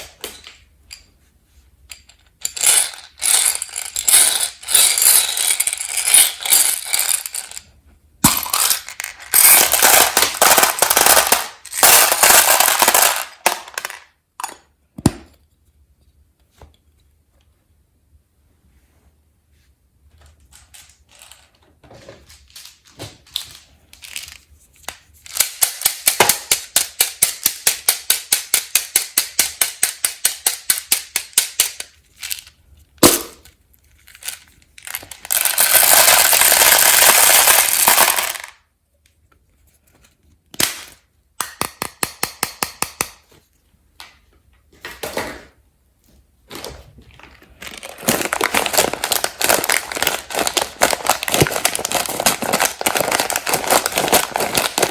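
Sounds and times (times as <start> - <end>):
candy packaging clicking: 47.6 - 54.9.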